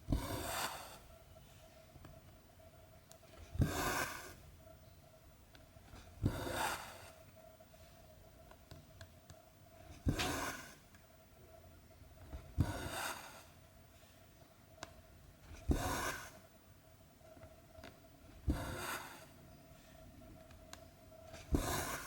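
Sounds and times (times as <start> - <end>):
needle poking through fabric: 21.3 - 22.0.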